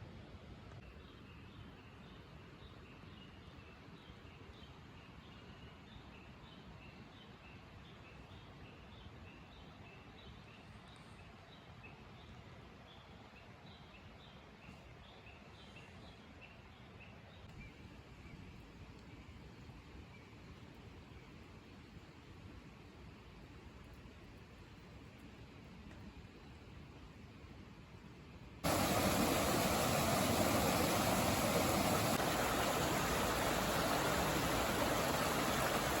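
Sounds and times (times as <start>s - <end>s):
low outdoor background hum: 0.0s - 36.0s
loud steady rushing noise: 28.6s - 36.0s.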